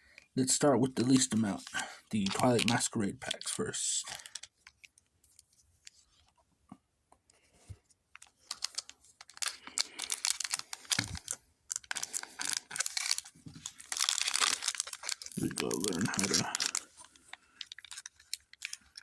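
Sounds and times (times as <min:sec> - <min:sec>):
foil wrapper crinkling and tearing: 0:00.5 - 0:04.8, 0:08.2 - 0:19.0.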